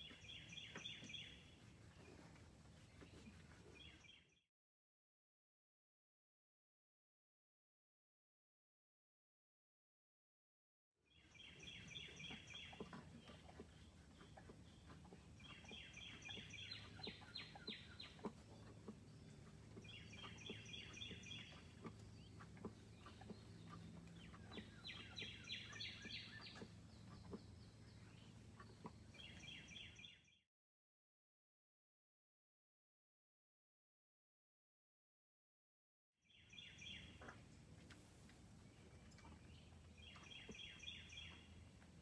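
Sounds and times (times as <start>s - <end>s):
songbird singing: 0.0s - 4.4s, 11.1s - 30.4s, 36.2s - 42.0s.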